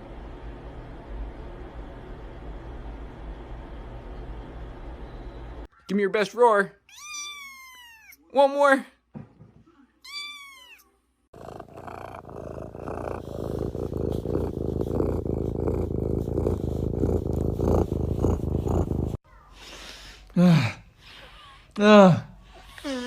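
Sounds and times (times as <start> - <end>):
cat meowing: 6.9 - 8.2, 10.0 - 10.8
cat purring loudly: 11.3 - 19.2.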